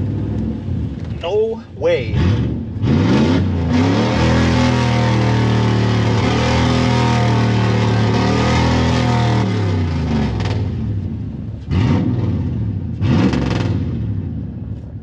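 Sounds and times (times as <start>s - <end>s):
truck engine revving hard: 2.0s - 10.9s, 11.7s - 14.3s.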